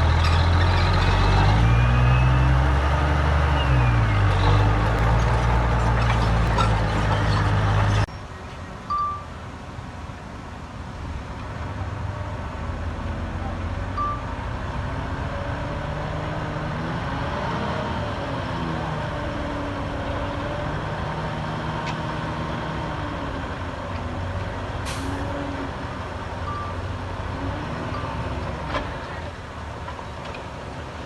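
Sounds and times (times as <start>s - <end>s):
heavy diesel engine revving: 0.0s - 8.1s, 12.8s - 29.2s.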